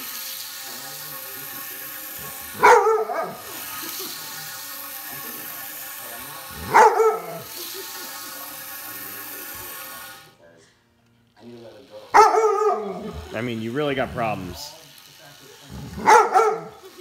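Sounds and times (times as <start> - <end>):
model train motor humming: 0.0 - 17.0
dog barking: 2.6 - 3.4, 6.6 - 7.5, 12.1 - 13.1, 15.9 - 16.8.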